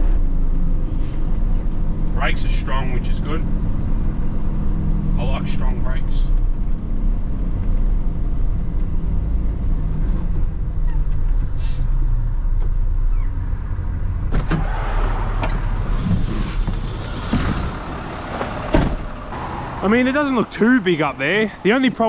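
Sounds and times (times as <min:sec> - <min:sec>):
diesel truck engine rumbling: 0:00.0 - 0:22.0
rushing hiss: 0:16.0 - 0:18.6.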